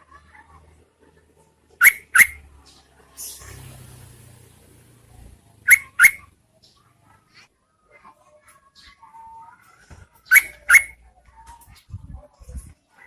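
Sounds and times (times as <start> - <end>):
bird sharp call notes: 1.8 - 2.4, 5.7 - 6.3, 10.3 - 11.0.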